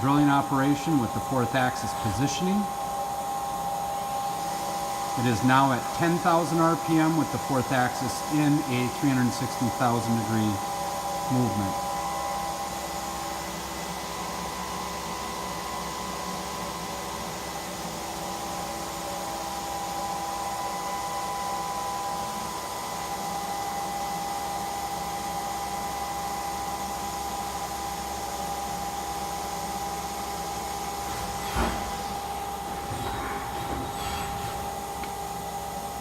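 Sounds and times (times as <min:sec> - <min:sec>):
drill machine spindle whine: 0:00.0 - 0:17.0.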